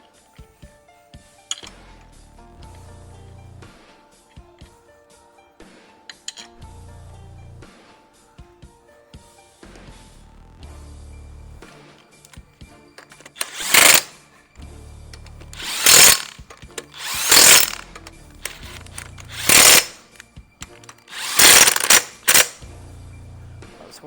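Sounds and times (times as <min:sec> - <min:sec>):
impact wrench bursts: 0:13.0 - 0:14.2, 0:15.2 - 0:22.6.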